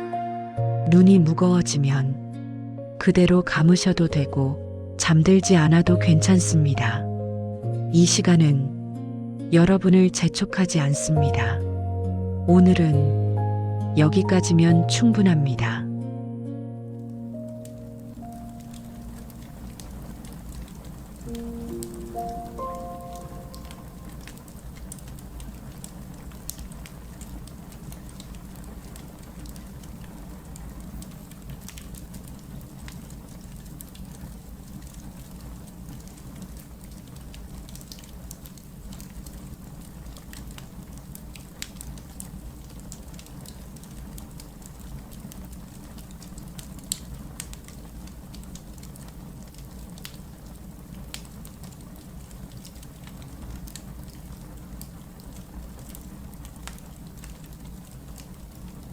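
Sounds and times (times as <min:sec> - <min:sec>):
fire crackling and popping: 0:16.8 - 0:58.9
wood fire rumbling: 0:16.8 - 0:58.9.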